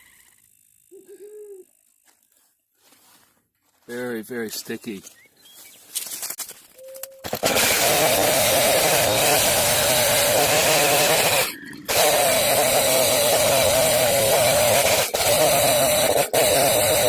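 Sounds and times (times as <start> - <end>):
chainsaw cutting log: 7.2 - 17.0.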